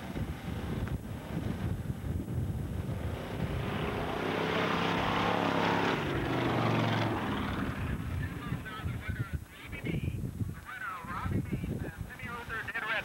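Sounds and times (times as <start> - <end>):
car engine revving hard: 2.9 - 8.0.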